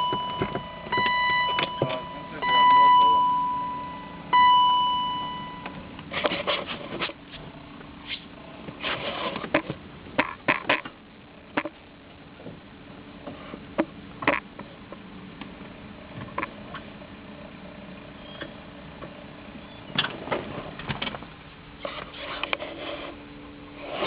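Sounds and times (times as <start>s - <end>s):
electronic beep: 0.0s - 5.8s.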